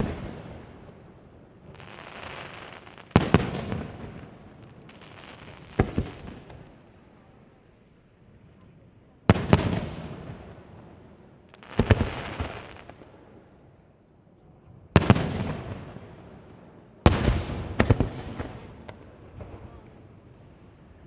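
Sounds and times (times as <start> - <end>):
firework booms: 0.0 - 1.1, 1.7 - 6.8, 9.3 - 10.9, 11.5 - 13.2, 15.0 - 16.2, 17.0 - 20.2
firework crackling: 0.0 - 6.9, 11.5 - 13.2.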